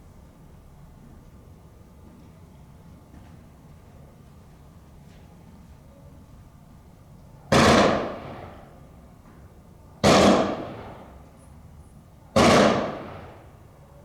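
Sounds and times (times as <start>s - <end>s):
rifle volleys with echo: 7.5s - 8.6s, 10.0s - 11.1s, 12.4s - 13.4s.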